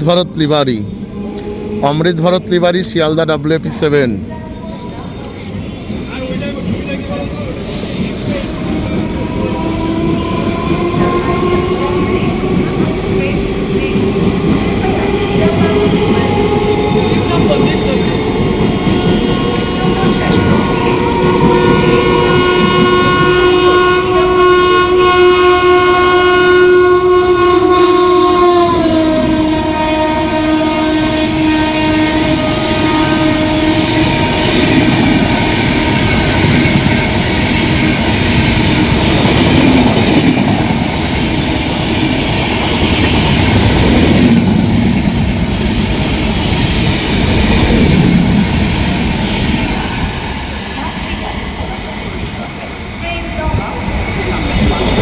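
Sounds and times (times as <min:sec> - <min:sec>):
train coaches rumbling and clattering: 0:00.0 - 0:55.0
locomotive horn chord: 0:19.9 - 0:37.1.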